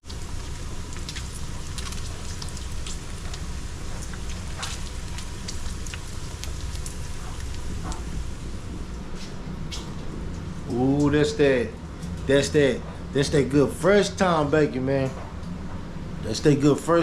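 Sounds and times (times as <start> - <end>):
bacon sizzling: 0.0 - 8.7.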